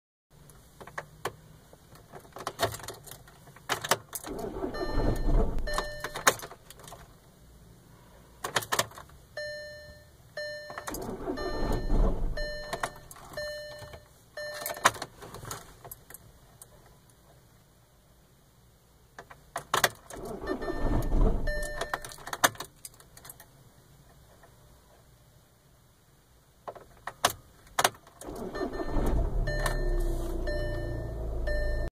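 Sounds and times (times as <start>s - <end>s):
diesel engine cranking: 4.2s - 6.3s, 10.8s - 13.2s, 20.1s - 22.2s, 28.2s - 31.9s
dashboard warning beeps: 4.4s - 6.3s, 9.4s - 15.0s, 20.2s - 22.2s, 28.3s - 31.9s.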